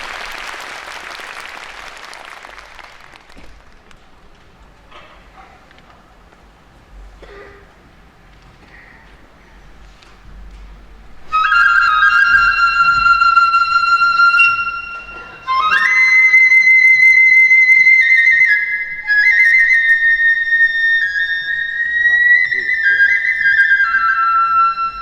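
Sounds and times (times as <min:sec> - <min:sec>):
bamboo flute playing: 0:11.3 - 0:25.0.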